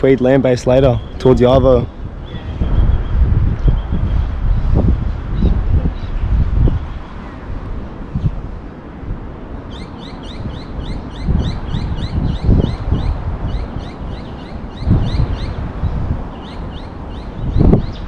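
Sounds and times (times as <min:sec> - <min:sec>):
wind buffeting microphone: 0:00.0 - 0:18.0
bird chirping rapidly: 0:09.7 - 0:18.0.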